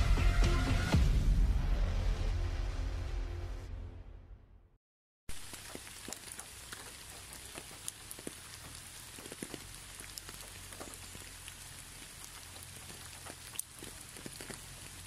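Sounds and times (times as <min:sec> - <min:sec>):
raindrops ticking: 0:05.3 - 0:15.0
steady rain: 0:05.3 - 0:15.0.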